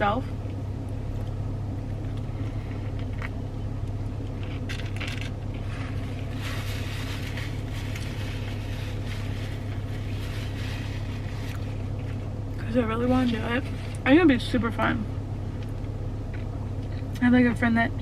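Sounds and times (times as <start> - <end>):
car idling from inside: 0.0 - 18.0.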